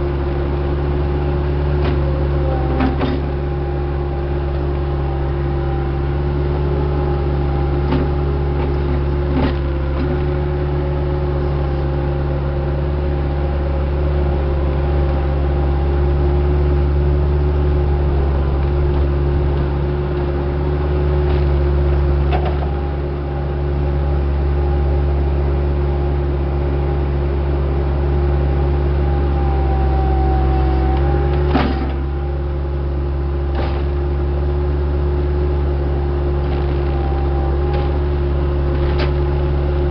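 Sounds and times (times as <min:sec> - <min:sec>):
diesel engine running: 0:00.0 - 0:39.9
short knocks and clanks: 0:22.2 - 0:22.8.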